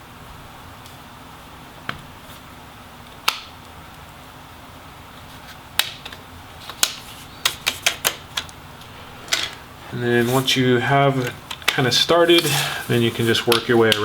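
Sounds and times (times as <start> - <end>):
plastic clips snapping loose: 3.2 - 3.5, 5.8 - 8.6, 11.2 - 12.5, 13.5 - 14.0.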